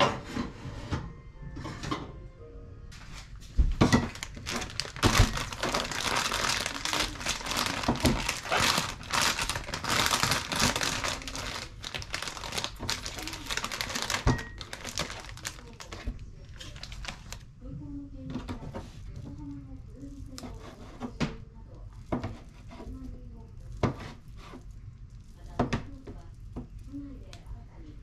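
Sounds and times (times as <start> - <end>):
plastic packaging crinkling: 3.7 - 17.5.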